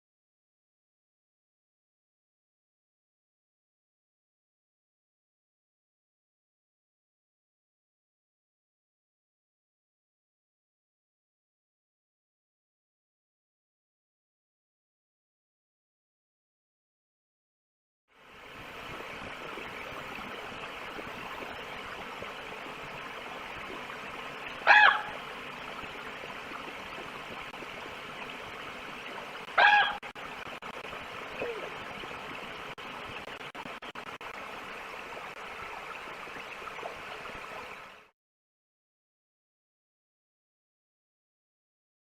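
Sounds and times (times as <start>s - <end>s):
wolf yelps: 24.6s - 25.2s, 29.6s - 30.0s.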